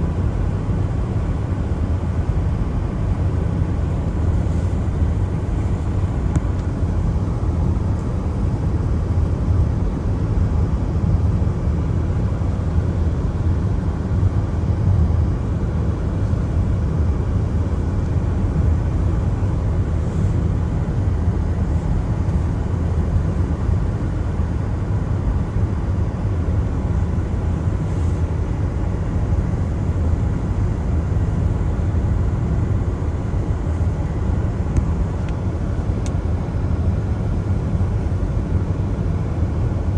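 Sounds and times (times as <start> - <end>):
faint tyre hiss on wet road: 4.1 - 6.3, 19.9 - 21.1, 27.6 - 28.6.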